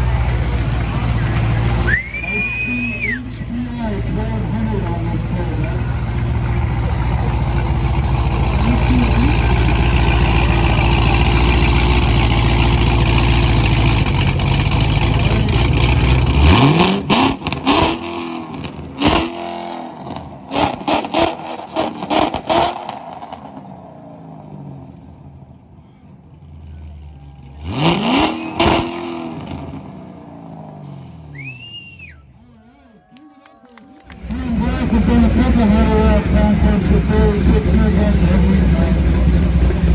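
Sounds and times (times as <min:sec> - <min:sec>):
car engine revving: 0:00.0 - 0:31.6, 0:34.0 - 0:39.9
short high whistle: 0:01.8 - 0:03.2, 0:31.2 - 0:32.3.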